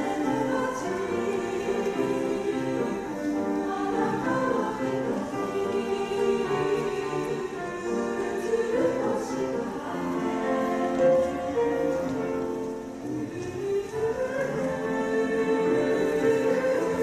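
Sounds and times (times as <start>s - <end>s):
choir singing held notes: 0.0s - 17.0s
musical accompaniment: 0.0s - 17.0s.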